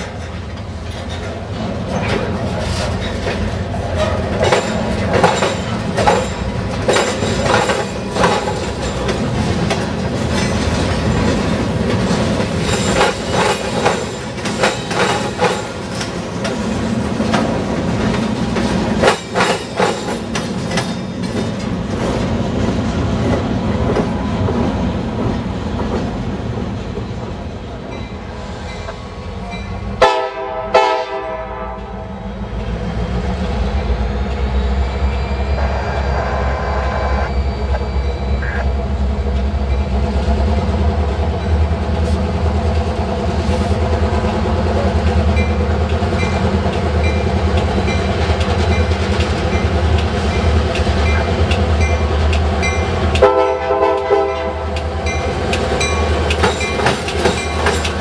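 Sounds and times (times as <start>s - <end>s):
train wheels clacking over crossing: 0.0s - 36.2s, 37.2s - 58.0s
train rumble: 0.0s - 58.0s
locomotive horn: 30.0s - 32.1s, 34.8s - 38.8s, 53.2s - 54.7s.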